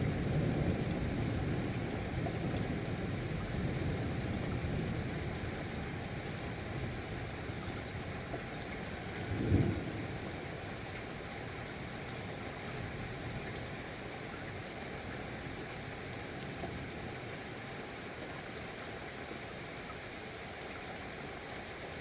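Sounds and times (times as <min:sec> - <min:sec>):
steady rainfall: 0:00.0 - 0:22.0.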